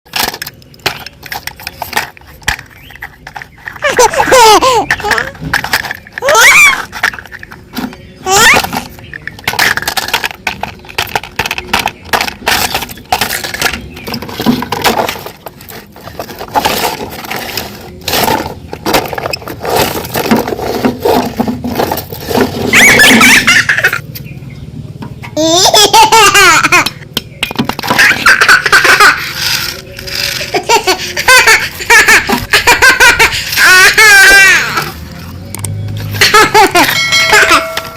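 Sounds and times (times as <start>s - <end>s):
child laughing: 3.8s - 5.4s, 8.2s - 8.7s, 22.6s - 24.0s, 25.4s - 27.0s, 27.8s - 35.0s, 36.1s - 37.9s
sharp clicks and knocks: 26.8s - 28.2s.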